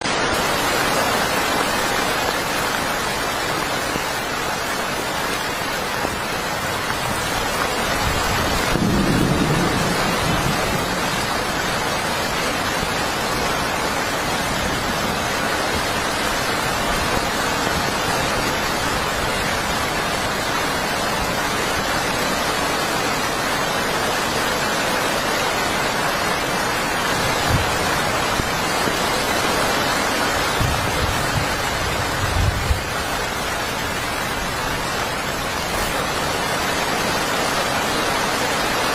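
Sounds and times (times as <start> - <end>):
heavy rain falling: 0.0 - 38.9
low rumble of thunder: 8.1 - 14.6.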